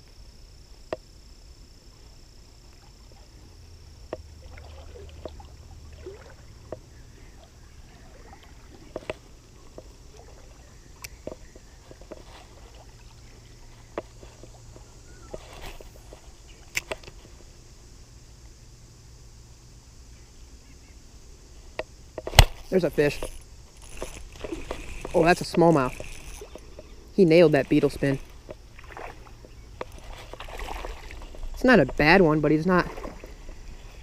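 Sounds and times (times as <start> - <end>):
water sloshing: 4.1 - 17.2, 22.3 - 34.0.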